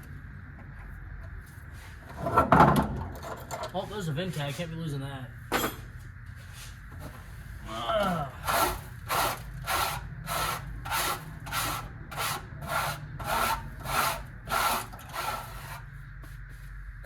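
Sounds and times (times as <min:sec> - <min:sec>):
hand tool scrubbing sheet metal: 0:08.4 - 0:15.9.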